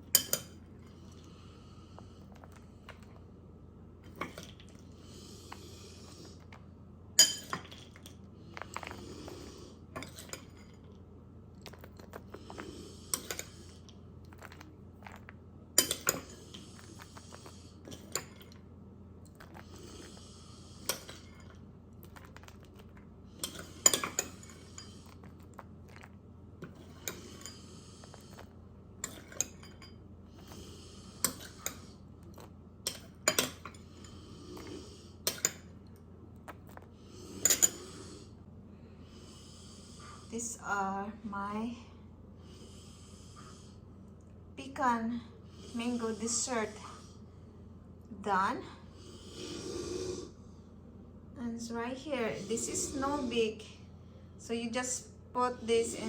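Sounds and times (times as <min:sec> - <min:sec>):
utensils clinking against a dish: 0:00.0 - 0:01.2, 0:07.2 - 0:09.0, 0:10.0 - 0:10.9, 0:11.7 - 0:13.6, 0:15.8 - 0:18.6, 0:20.8 - 0:30.6, 0:31.2 - 0:35.8, 0:36.6 - 0:38.0.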